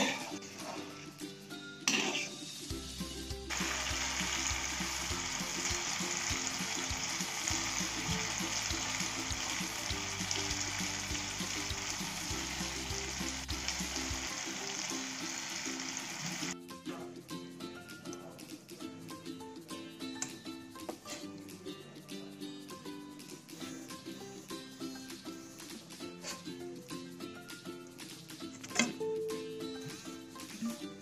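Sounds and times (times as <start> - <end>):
food sizzling in oil: 1.9 - 16.6.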